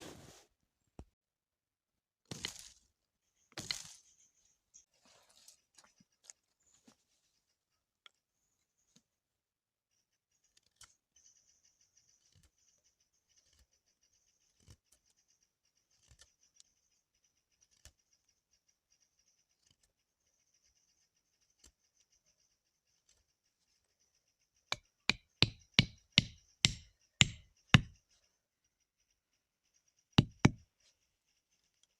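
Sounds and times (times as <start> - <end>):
sharp knocks: 24.7 - 28.0, 30.2 - 30.6.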